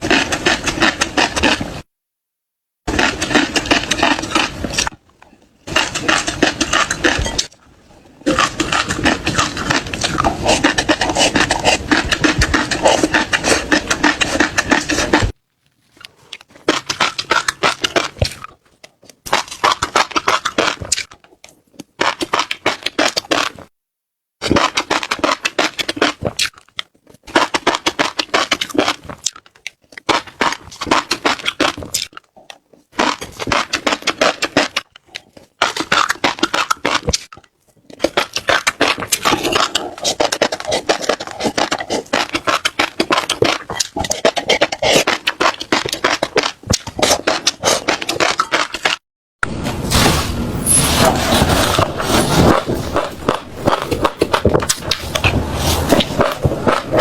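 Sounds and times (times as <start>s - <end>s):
seeds crackling: 49.8s - 57.0s.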